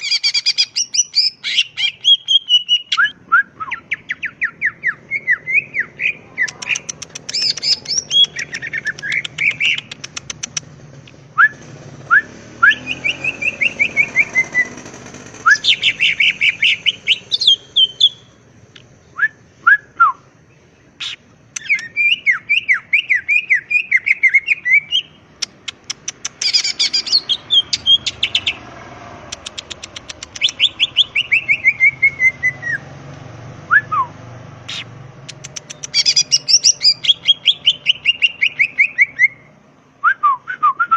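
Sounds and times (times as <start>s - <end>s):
bird singing whistled notes: 0.0s - 10.0s, 11.4s - 18.4s, 19.0s - 25.5s, 26.4s - 28.6s, 29.4s - 32.9s, 33.7s - 40.9s.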